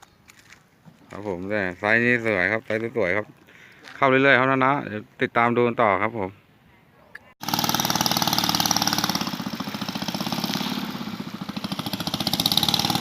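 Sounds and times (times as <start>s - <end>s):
boat engine running: 7.4s - 13.0s.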